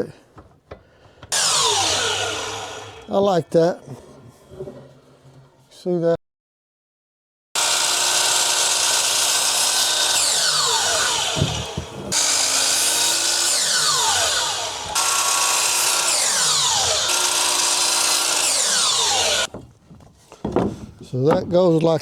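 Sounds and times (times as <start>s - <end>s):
power tool cutting wood: 1.3s - 3.2s, 7.6s - 19.5s.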